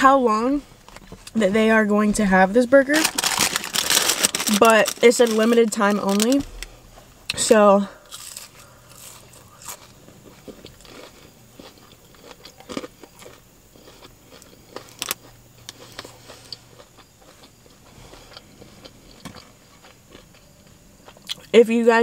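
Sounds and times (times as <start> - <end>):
food crunching: 2.9 - 21.5
person chewing food: 8.0 - 21.5.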